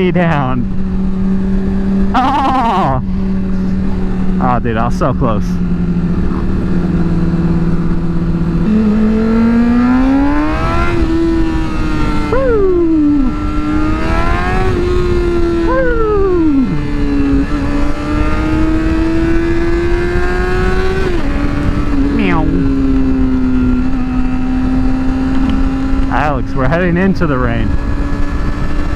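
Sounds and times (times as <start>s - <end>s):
motorcycle engine revving: 0.0s - 28.9s
wind rush on microphone: 6.0s - 26.5s, 27.2s - 28.9s.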